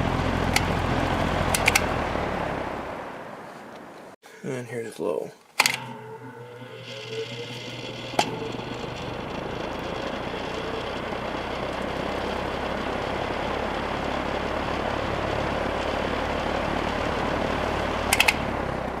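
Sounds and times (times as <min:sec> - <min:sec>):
fan running: 0:00.0 - 0:04.1, 0:05.6 - 0:19.0
sharp clicks: 0:00.4 - 0:01.9, 0:05.5 - 0:11.9, 0:18.1 - 0:18.5.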